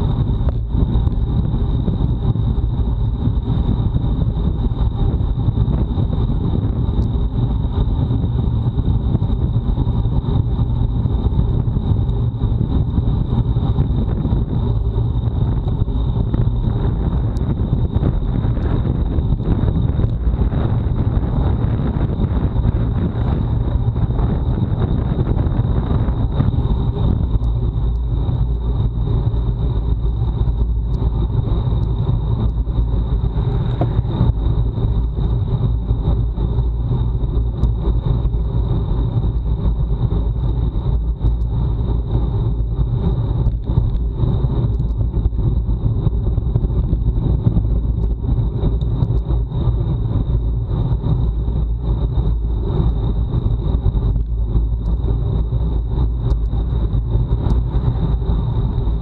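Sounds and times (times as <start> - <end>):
wind rumbling on microphone: 0.0 - 59.0
thin high whine: 8.5 - 44.8.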